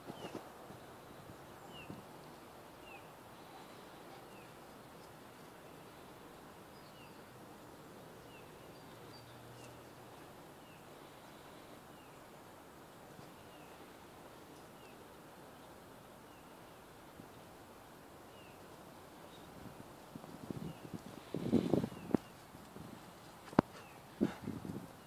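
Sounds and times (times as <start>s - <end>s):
small bird chirping: 0.0s - 0.4s, 8.1s - 10.9s
faint outdoor ambience: 0.0s - 25.0s.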